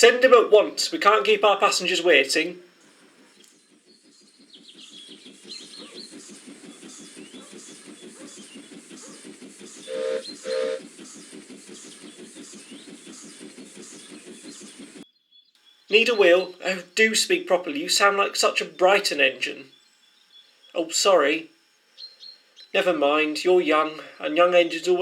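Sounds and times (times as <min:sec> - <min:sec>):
steam locomotive chuffing: 0:00.0 - 0:15.0
faint birds chirping: 0:00.0 - 0:25.0
train whistle blasts: 0:09.9 - 0:10.8.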